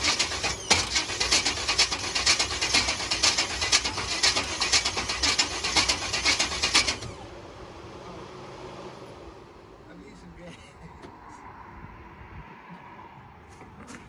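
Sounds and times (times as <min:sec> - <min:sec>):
crackling engine exhaust: 0:00.0 - 0:09.9.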